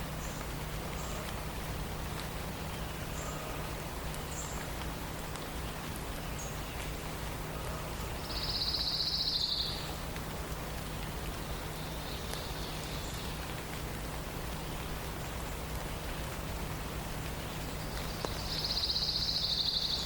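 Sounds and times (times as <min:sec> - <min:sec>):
steady background hiss: 0:00.0 - 0:20.0
songbird trill: 0:05.4 - 0:10.0, 0:11.4 - 0:13.5, 0:17.4 - 0:20.0.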